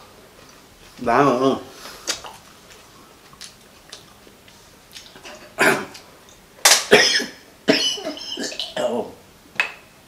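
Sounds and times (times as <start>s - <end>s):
quiet chewing with faint crunches: 1.8s - 6.4s
loud cough-like burst: 6.8s - 9.1s.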